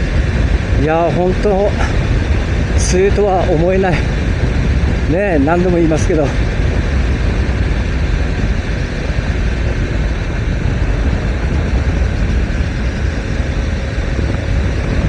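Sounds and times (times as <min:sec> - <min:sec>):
motorcycle engine running: 0:00.0 - 0:15.0
wind rush on microphone: 0:00.0 - 0:15.0.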